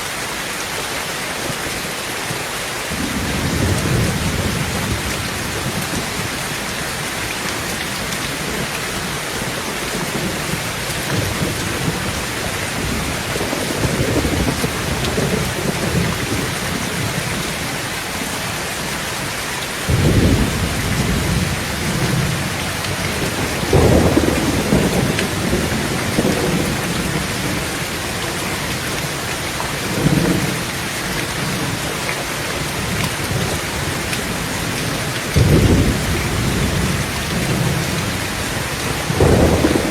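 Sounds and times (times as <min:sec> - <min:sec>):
heavy rain on tin roof: 0:00.0 - 0:39.9
thunder rumbling: 0:02.9 - 0:18.2, 0:19.9 - 0:39.9.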